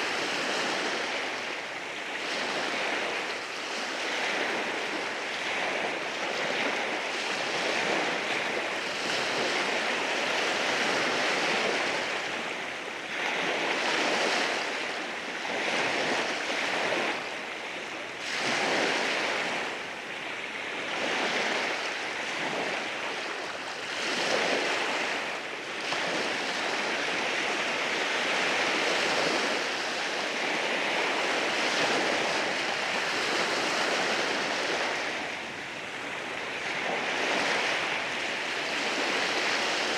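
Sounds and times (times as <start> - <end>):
waves washing over rocks: 21.3 - 39.9.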